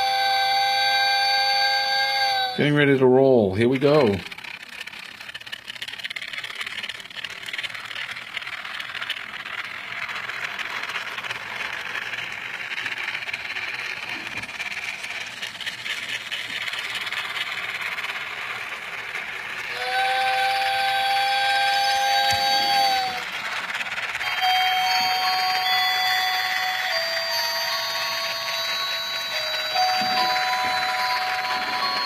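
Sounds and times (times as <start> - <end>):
electronic train whistle tone: 0.0 - 2.7, 19.7 - 23.2, 24.2 - 32.0
model train whirring rattle: 0.0 - 32.0.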